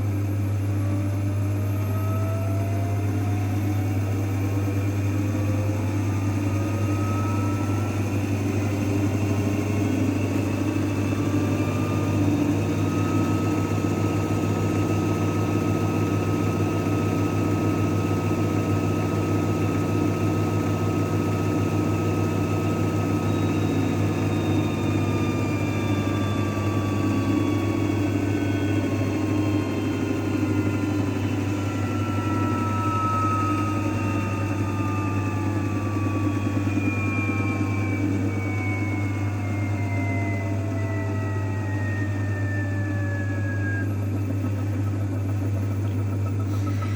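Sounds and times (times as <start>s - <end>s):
motor whine falling in pitch: 0.0s - 46.9s
washing machine running: 0.0s - 46.9s.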